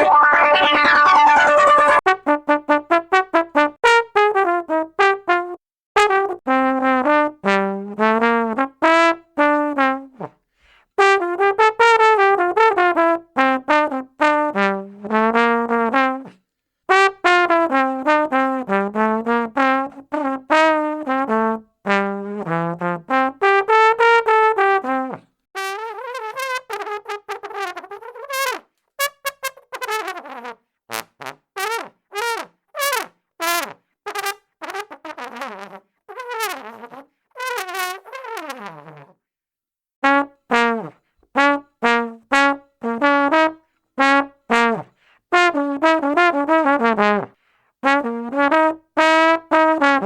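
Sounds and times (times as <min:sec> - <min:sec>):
brass instrument playing: 0:00.0 - 0:10.2.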